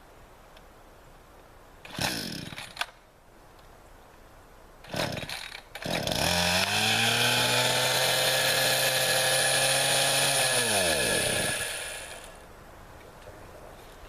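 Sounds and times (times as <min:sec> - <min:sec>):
chainsaw engine running: 0:01.9 - 0:02.8, 0:04.9 - 0:12.4.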